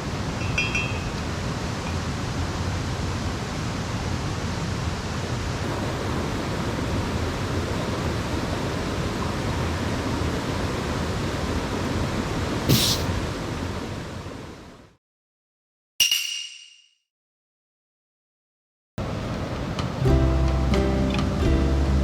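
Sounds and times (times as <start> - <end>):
stream rushing over rocks: 0.0 - 14.6.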